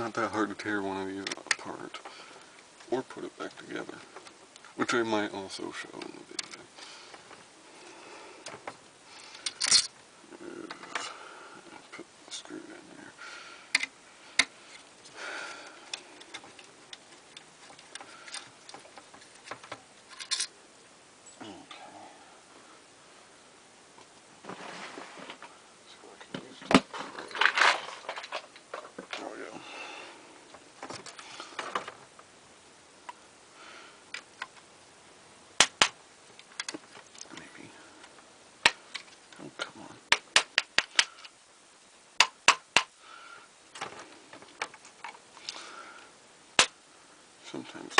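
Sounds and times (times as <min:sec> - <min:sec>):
hand tools and metal parts clicking: 0:09.2 - 0:09.9, 0:15.6 - 0:20.5
metal parts scraping: 0:09.2 - 0:09.9, 0:17.6 - 0:20.5, 0:26.9 - 0:29.0.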